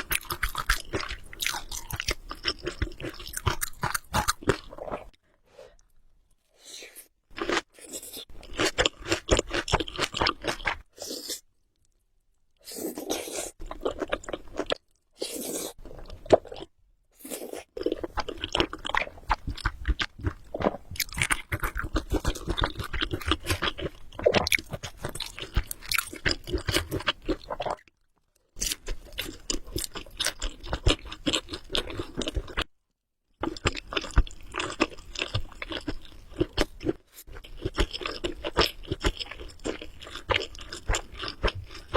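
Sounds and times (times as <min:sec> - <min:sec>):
wet chewing of noodles: 0:00.0 - 0:06.0, 0:06.9 - 0:12.0, 0:12.6 - 0:27.9, 0:28.6 - 0:32.7, 0:33.4 - 0:41.9.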